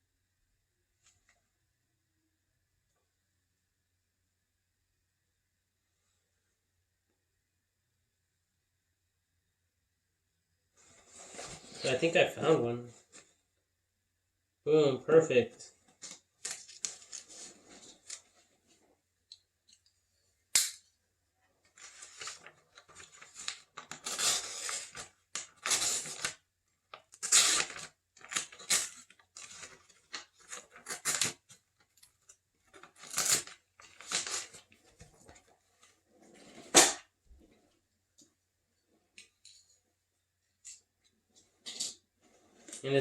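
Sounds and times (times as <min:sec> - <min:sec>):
paper rustling: 0:15.9 - 0:18.8, 0:21.7 - 0:36.9.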